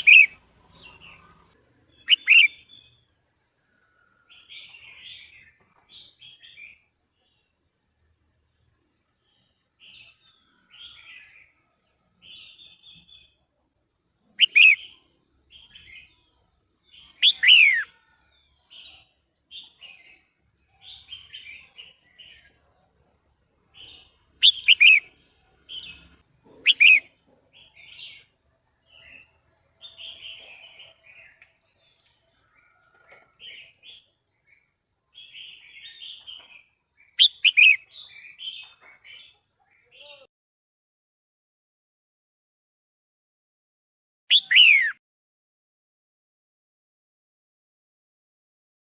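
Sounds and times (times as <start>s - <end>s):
bulbul chattering calls: 0.0s - 1.3s, 2.0s - 2.8s, 14.4s - 15.0s, 17.2s - 17.9s, 23.8s - 25.1s, 25.7s - 27.1s, 37.2s - 38.7s.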